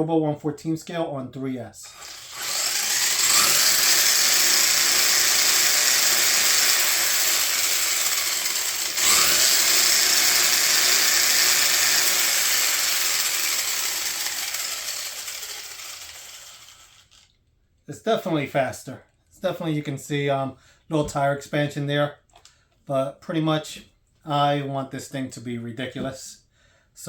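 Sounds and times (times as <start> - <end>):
toy car electric motor whining: 1.9 - 17.3.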